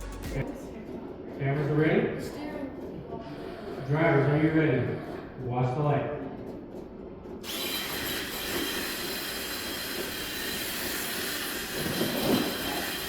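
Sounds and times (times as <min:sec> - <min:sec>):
rc truck motors whining: 0:07.4 - 0:13.0.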